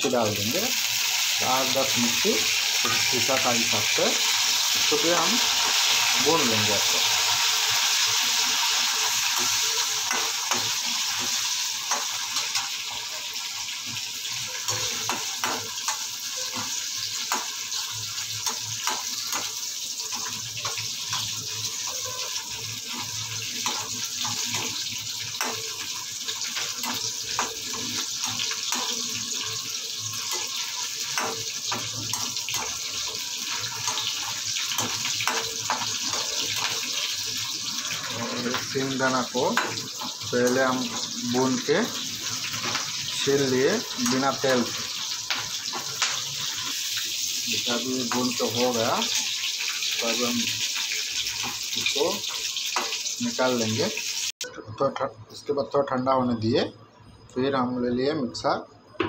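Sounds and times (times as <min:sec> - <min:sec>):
garlic sizzling in hot oil: 0:00.0 - 0:54.4.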